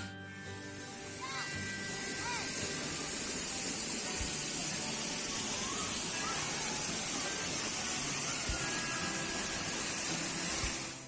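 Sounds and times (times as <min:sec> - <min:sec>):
waterfall rushing: 0:00.8 - 0:11.0.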